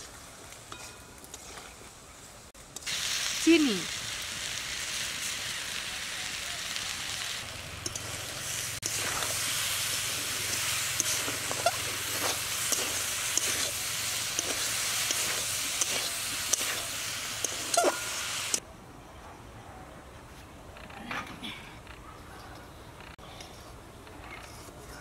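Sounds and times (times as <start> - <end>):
fruit sizzling in hot oil: 2.6 - 18.6.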